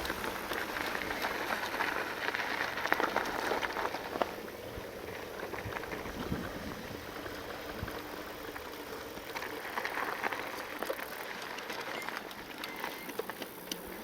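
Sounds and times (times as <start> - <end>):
bike rattling clicks: 0.0 - 4.4, 7.2 - 14.0
tyres crunching on gravel: 0.0 - 14.0.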